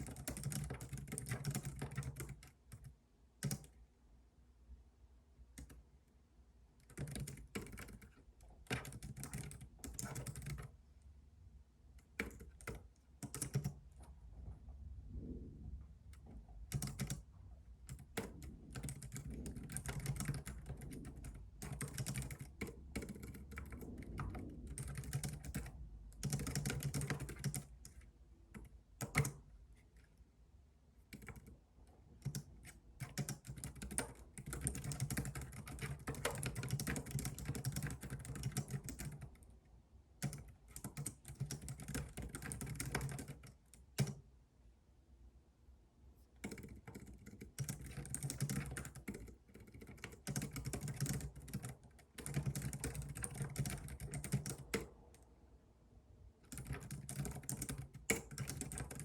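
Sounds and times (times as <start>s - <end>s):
faint low rumble: 13.8s - 32.2s
keyboard key clicks: 46.4s - 54.9s.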